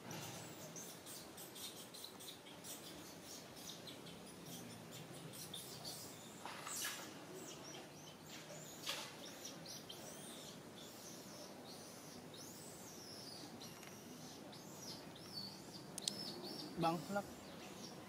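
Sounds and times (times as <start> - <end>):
bird chirping: 0.0 - 18.0
steady hiss: 0.0 - 18.0.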